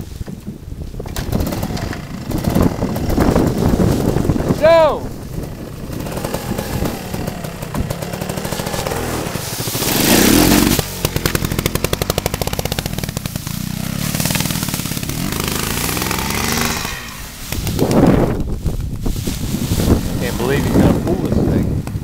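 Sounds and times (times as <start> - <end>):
motorcycle engine running: 0.5 - 22.0.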